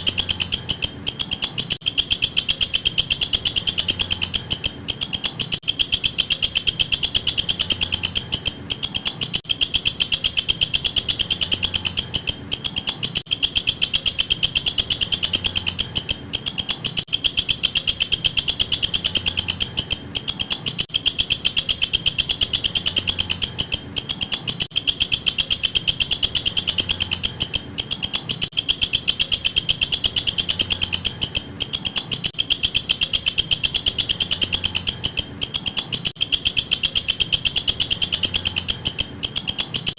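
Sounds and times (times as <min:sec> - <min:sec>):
katydid stridulating: 0:00.0 - 0:39.9.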